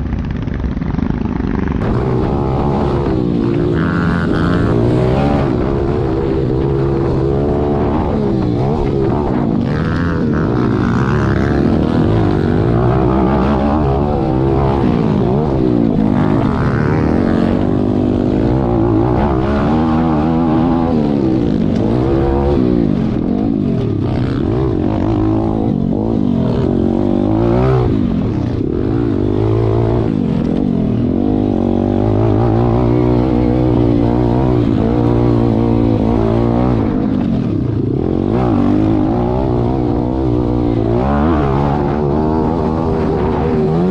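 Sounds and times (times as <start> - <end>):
motorbike engines revving: 0.0 - 43.9.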